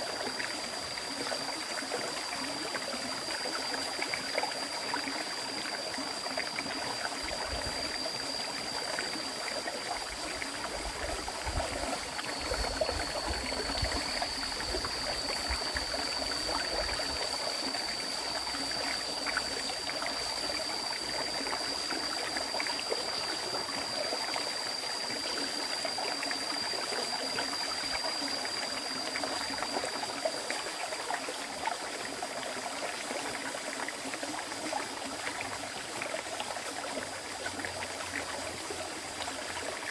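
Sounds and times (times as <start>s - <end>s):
high-pitched whine: 0.0s - 30.3s
river water flowing: 0.0s - 30.3s.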